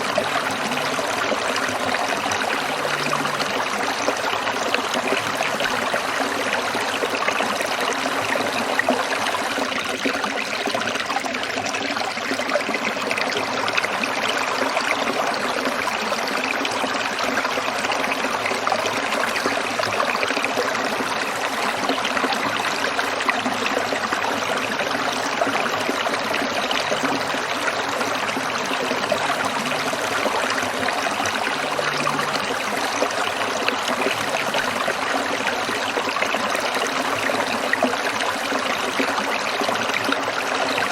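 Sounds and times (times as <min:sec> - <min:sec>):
stream babbling over stones: 0:00.0 - 0:40.9.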